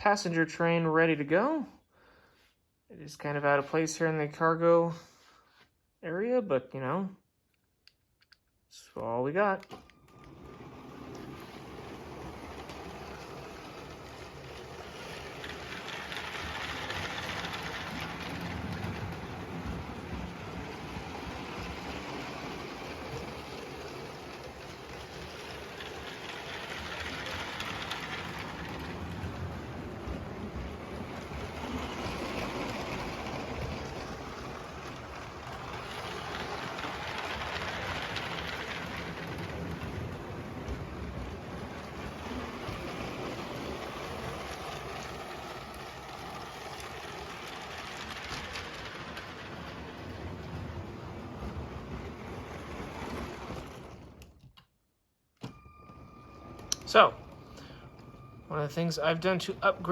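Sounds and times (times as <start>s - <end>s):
toy train motor whirring and rattling: 10.2s - 54.2s.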